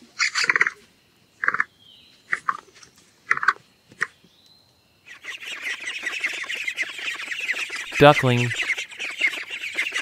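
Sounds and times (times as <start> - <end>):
capybara calling: 0.2 - 0.8, 5.1 - 10.0.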